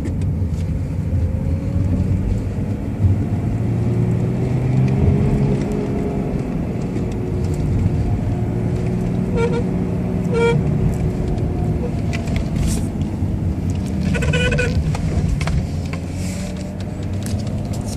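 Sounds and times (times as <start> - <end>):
car engine running: 0.0 - 17.9
steering column squeaking: 14.0 - 14.8.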